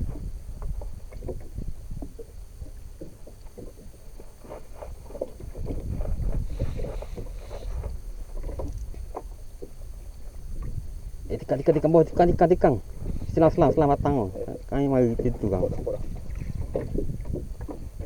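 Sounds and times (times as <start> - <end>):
water slapping against boat hull: 0.0 - 9.8, 13.1 - 18.0.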